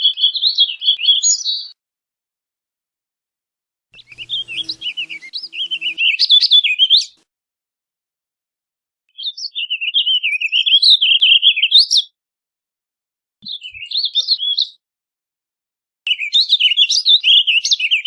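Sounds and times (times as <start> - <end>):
bird singing warbled songs: 0.0 - 1.8, 4.0 - 7.2, 9.1 - 12.2, 13.4 - 14.8, 16.1 - 18.0.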